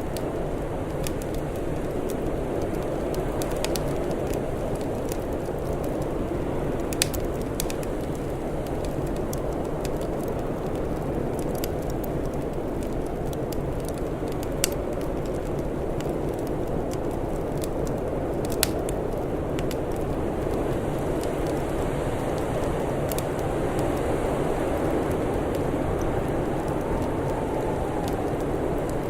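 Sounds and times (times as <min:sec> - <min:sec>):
wood fire crackling and popping: 0:00.0 - 0:29.0
low rushing noise: 0:25.5 - 0:29.0.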